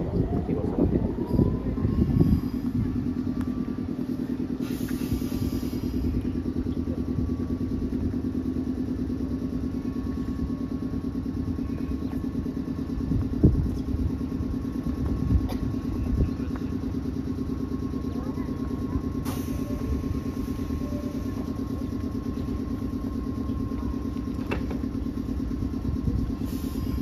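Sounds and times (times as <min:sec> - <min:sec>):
train machinery pulsing hum: 0:00.0 - 0:27.0
air hiss: 0:04.6 - 0:06.0.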